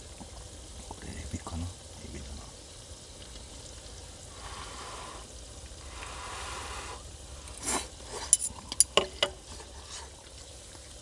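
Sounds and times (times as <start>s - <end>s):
food sizzling in a pan: 0.0s - 11.0s
utensils clinking against pan: 8.2s - 9.7s.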